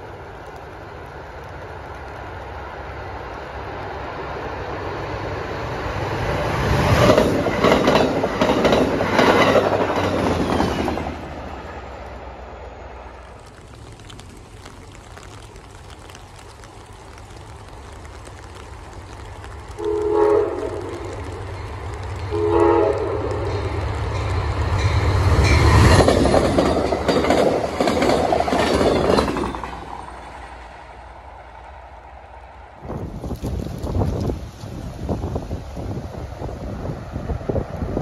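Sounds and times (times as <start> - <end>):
train wheels and rail clatter: 0.0 - 12.2, 13.0 - 38.0
train horn blasts: 19.8 - 21.1, 22.3 - 23.7.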